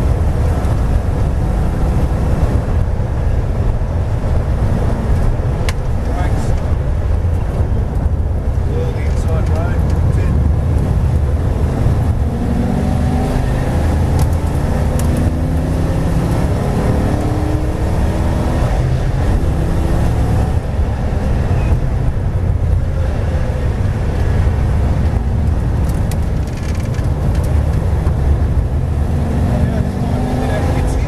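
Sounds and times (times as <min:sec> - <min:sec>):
race car engine accelerating: 0:08.6 - 0:31.0.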